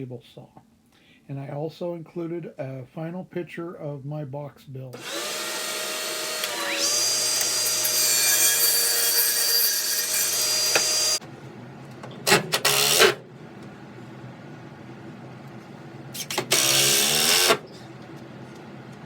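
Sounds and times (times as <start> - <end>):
electric power tool running: 5.0 - 11.2.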